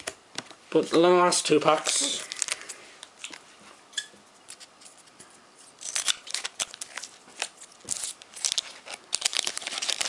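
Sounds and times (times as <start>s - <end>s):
foil wrapper crinkling: 1.8s - 3.4s, 5.7s - 10.0s.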